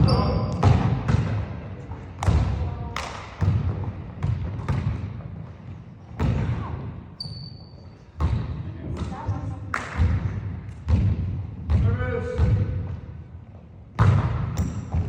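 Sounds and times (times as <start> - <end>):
basketball bouncing on hardwood floor: 0.0 - 1.4, 3.4 - 5.1, 8.2 - 9.4, 10.0 - 12.7, 14.0 - 15.0
brief high squeak: 7.2 - 8.0.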